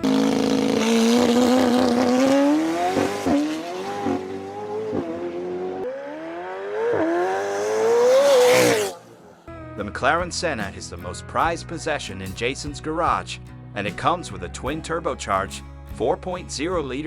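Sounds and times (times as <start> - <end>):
car engine accelerating: 0.0 - 9.3.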